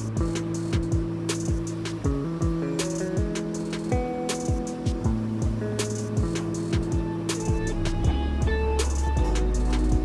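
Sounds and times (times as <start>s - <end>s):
steady bass line: 0.0s - 10.0s
deep kick drum hits: 5.0s - 10.0s.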